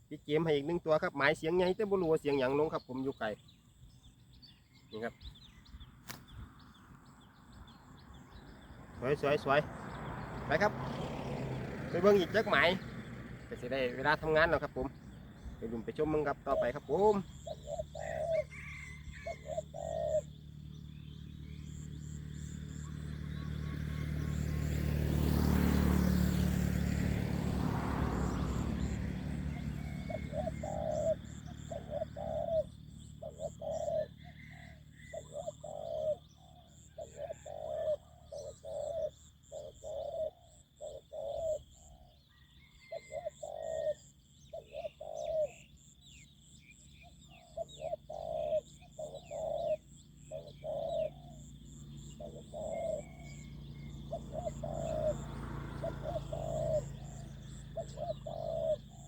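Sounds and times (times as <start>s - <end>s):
dove cooing: 0.0s - 3.4s, 11.6s - 12.9s, 13.5s - 59.0s
vehicle passing: 4.9s - 59.0s.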